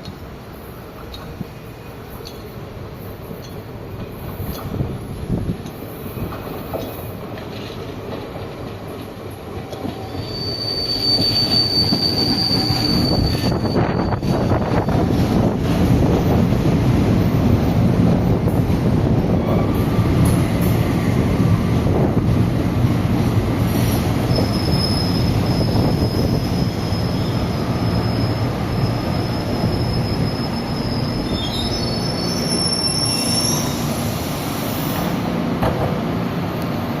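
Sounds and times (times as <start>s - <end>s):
electric train rumbling: 0.0s - 37.0s
high wheel squeal: 9.9s - 15.2s, 24.3s - 34.0s.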